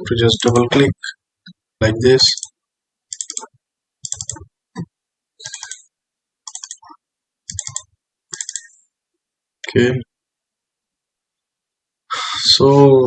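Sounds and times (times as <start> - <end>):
mouse and keyboard clicking: 3.1 - 4.4, 5.4 - 6.9, 7.5 - 8.8.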